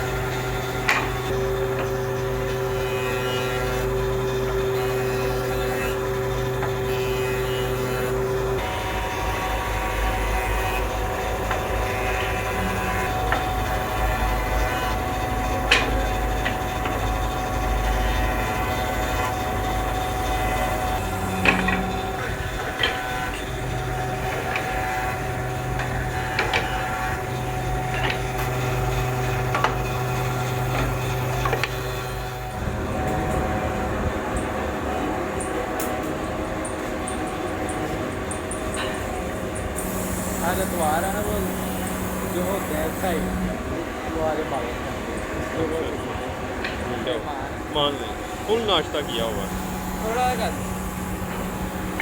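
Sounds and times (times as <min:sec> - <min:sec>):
woodworking machinery humming: 0:00.0 - 0:52.0.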